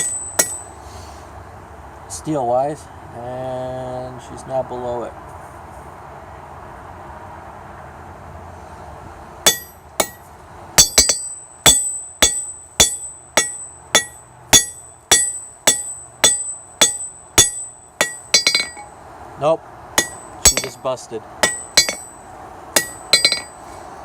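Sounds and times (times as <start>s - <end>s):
hammer striking metal on anvil: 0.0s - 0.7s, 9.4s - 19.0s, 20.0s - 22.2s, 22.8s - 23.6s.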